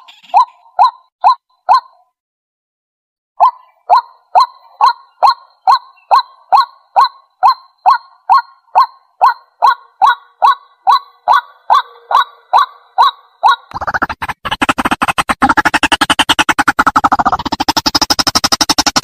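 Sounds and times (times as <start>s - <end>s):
bird honking call: 0.0s - 0.9s, 3.4s - 13.7s.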